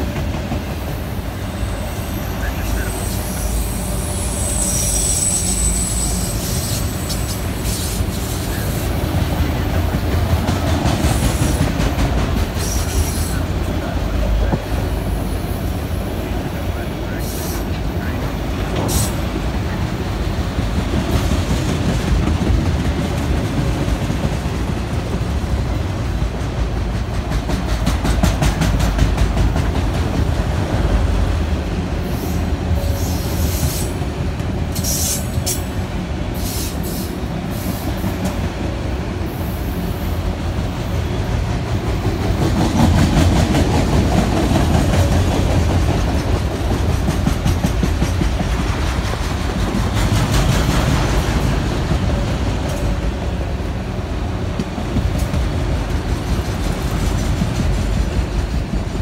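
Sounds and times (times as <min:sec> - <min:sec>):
freight train rumbling past: 0:00.0 - 0:59.0
high wheel squeals: 0:01.4 - 0:08.7.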